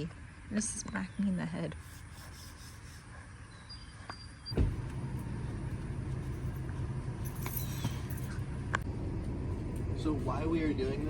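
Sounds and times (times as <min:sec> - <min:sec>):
diesel engine starting and idling: 0:04.6 - 0:11.0.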